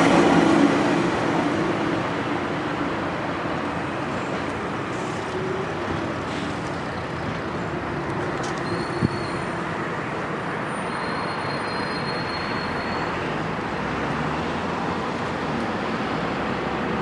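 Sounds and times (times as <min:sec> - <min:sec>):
electric train approaching: 0:00.0 - 0:13.1
city traffic rumble: 0:00.0 - 0:17.0
train wheel squeal: 0:08.6 - 0:09.6, 0:10.7 - 0:13.3.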